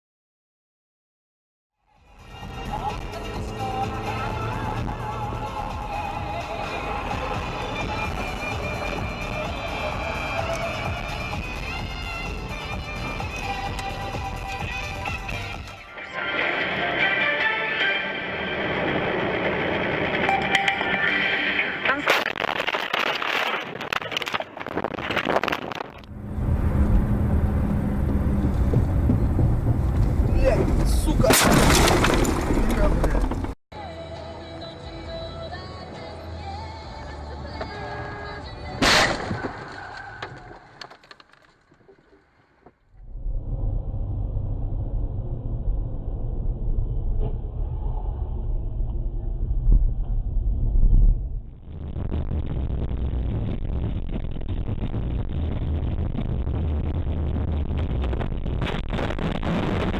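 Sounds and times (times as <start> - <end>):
engine and road rumble: 2.0 - 59.9
wind buffeting microphone: 26.1 - 31.2
dense clicks and knocks: 27.7 - 33.6, 38.8 - 42.9.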